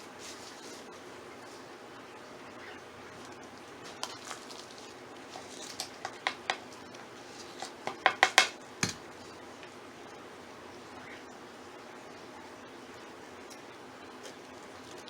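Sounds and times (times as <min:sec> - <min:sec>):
pots and tools knocking together: 0:06.1 - 0:06.6, 0:07.9 - 0:09.0.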